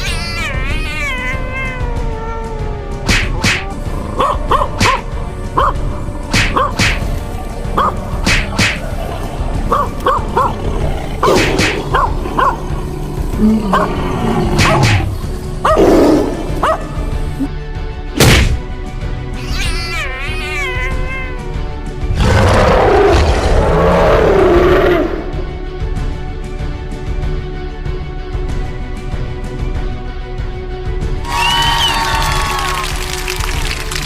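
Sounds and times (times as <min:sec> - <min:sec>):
wavering cry falling in pitch: 0:00.0 - 0:02.5, 0:19.4 - 0:21.6
background music: 0:00.0 - 0:34.0
animal growls and roars: 0:08.6 - 0:17.4, 0:22.0 - 0:25.5.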